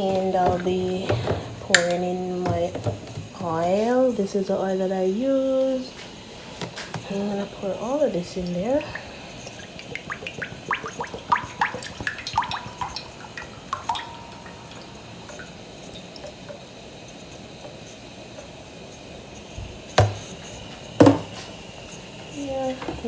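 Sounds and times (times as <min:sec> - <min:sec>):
oil glugging out of a bottle: 0:08.4 - 0:16.7.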